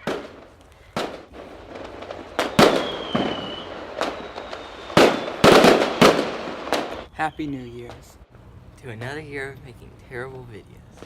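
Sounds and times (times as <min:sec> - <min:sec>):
fireworks bangs: 0:00.0 - 0:08.2
firework whistle: 0:02.1 - 0:08.2.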